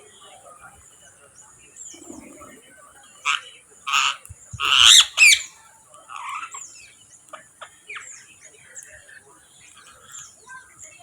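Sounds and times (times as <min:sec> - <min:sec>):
birds squawking harshly: 0:03.3 - 0:05.5.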